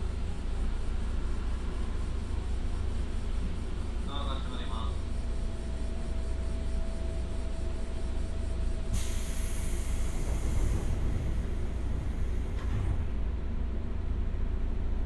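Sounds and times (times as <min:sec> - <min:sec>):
faint steady whine: 0:00.0 - 0:15.0
train rumbling on rails: 0:00.0 - 0:15.0
burst of hiss: 0:08.9 - 0:12.4.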